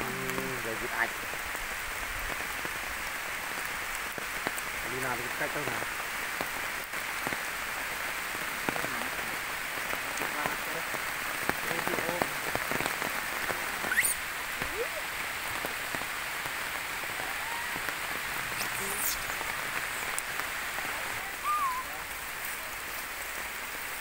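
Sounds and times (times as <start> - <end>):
rain falling on foliage: 0.0 - 24.0
short high calls: 13.8 - 15.0, 17.2 - 20.2, 21.3 - 22.1.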